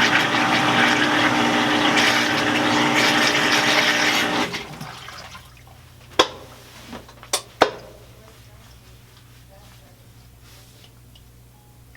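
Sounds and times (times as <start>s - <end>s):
motor and pump humming: 0.0s - 5.8s
water draining: 0.0s - 5.8s.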